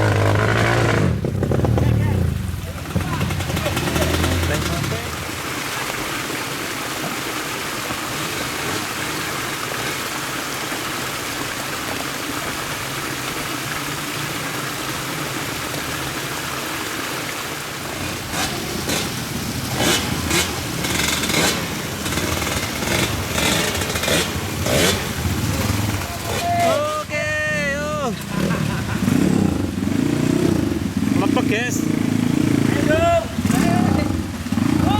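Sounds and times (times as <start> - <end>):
motorcycle engine running: 0.0 - 5.3, 17.9 - 26.4, 28.0 - 34.9
noisy hiss: 16.2 - 34.9.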